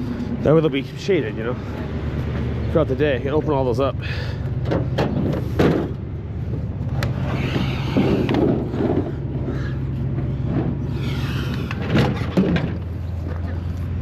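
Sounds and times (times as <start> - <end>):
vehicle engine idling: 0.0 - 14.0
sharp knocks and clatter: 4.6 - 9.3, 10.1 - 13.6.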